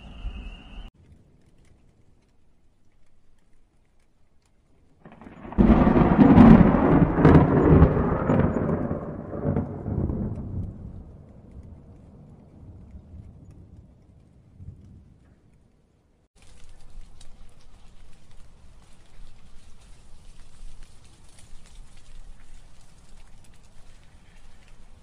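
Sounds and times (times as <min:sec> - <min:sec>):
faint rain falling: 0:00.9 - 0:25.0
thunderclap: 0:05.0 - 0:15.4.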